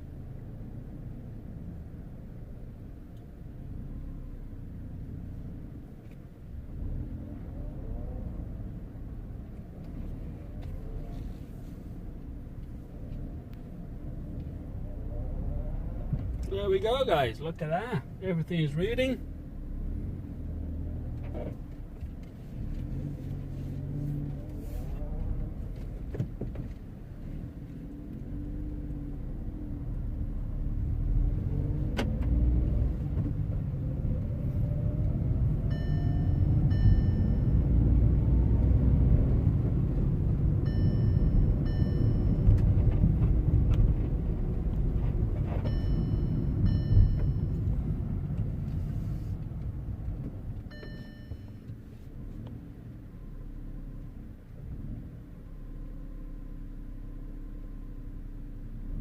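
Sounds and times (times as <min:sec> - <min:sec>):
car engine and road rumble: 0:00.0 - 0:59.0
double electronic chime: 0:35.7 - 0:37.7, 0:40.7 - 0:42.5, 0:45.7 - 0:47.6.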